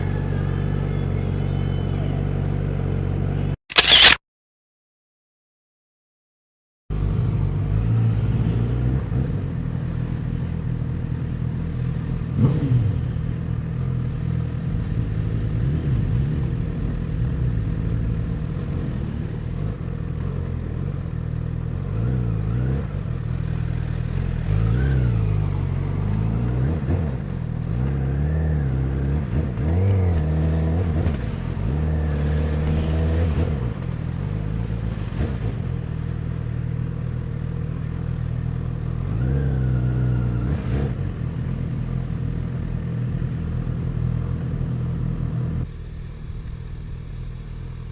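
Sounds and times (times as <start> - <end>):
motorcycle engine accelerating: 11.8 - 47.9.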